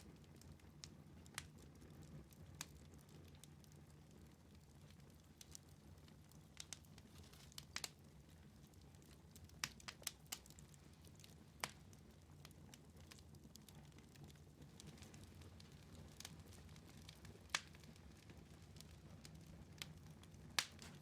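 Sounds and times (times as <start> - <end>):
wood fire crackling: 0.0 - 21.0
sharp pops of fire: 19.8 - 21.0.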